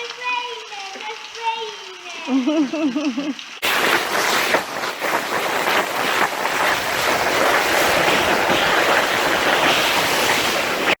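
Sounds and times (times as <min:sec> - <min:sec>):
rushing hiss of sea water: 0:03.6 - 0:11.0.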